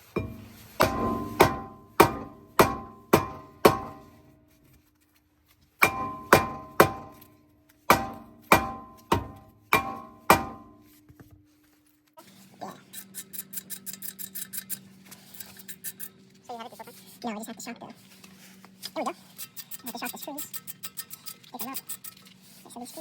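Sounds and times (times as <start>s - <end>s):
hammer striking metal: 0.0s - 4.2s, 5.8s - 7.3s, 7.9s - 11.0s.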